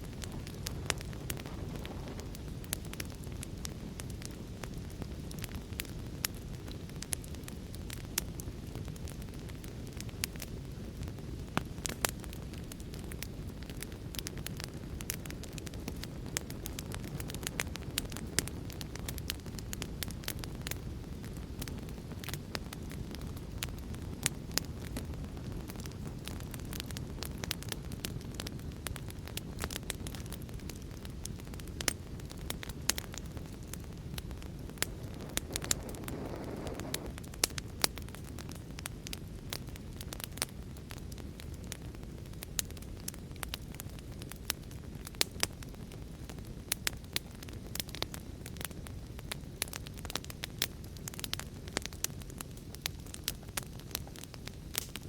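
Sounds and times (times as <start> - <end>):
fire hissing: 0.0 - 9.0, 9.6 - 40.5
low rumble of burning: 0.0 - 55.0
wood fire crackling and popping: 0.0 - 55.0.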